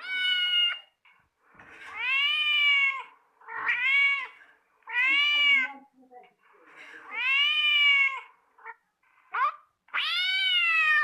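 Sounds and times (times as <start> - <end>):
cat meowing: 0.0 - 1.0, 1.9 - 5.8, 7.0 - 11.0.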